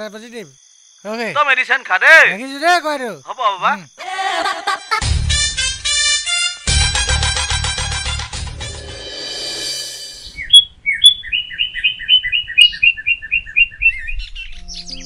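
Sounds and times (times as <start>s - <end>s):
music: 5.0s - 9.6s, 14.6s - 15.0s
bird chirping rapid notes: 9.2s - 13.2s.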